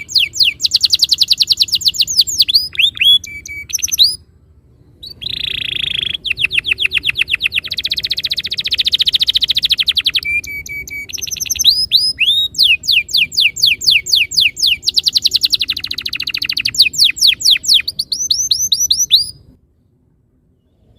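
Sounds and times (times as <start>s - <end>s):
canary singing: 0.0s - 19.6s.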